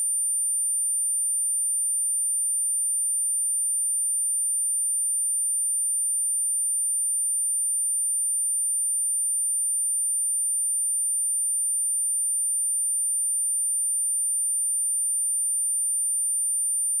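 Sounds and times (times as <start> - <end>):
high-pitched sine-wave test tone: 11.2 - 17.0.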